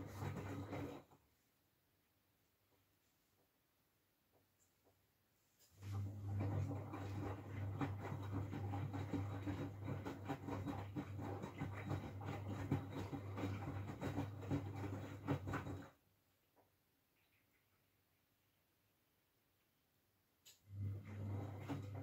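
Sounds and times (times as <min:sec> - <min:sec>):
wet laundry tumbling and swishing: 0:00.0 - 0:01.0
washing machine motor hum: 0:00.0 - 0:01.3, 0:05.7 - 0:16.1, 0:20.5 - 0:22.0.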